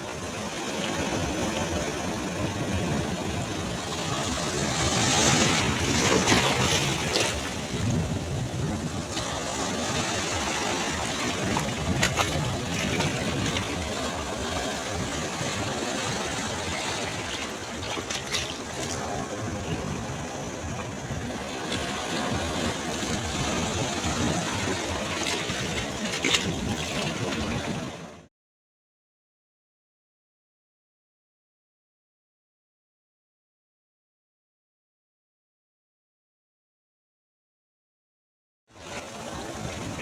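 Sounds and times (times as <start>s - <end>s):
waves breaking on beach: 0.0s - 28.3s, 38.8s - 40.0s.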